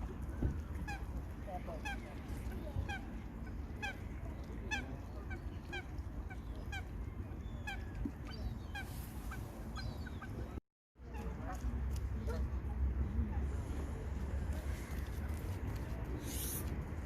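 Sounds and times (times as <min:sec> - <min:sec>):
waterfowl calling: 0:01.8 - 0:04.0, 0:04.7 - 0:06.9.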